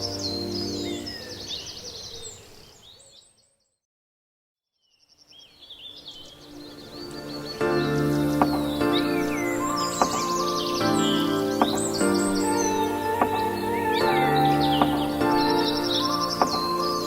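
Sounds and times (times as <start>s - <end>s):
background music: 0.0s - 1.7s, 6.1s - 17.0s
birdsong chirping: 0.0s - 3.8s, 4.8s - 17.0s.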